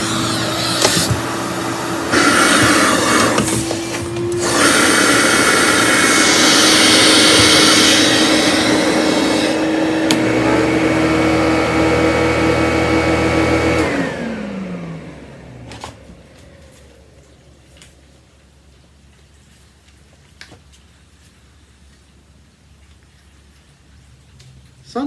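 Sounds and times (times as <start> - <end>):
vacuum motor winding down: 0.0 - 17.4
vacuum cleaner motor whine: 0.0 - 18.1.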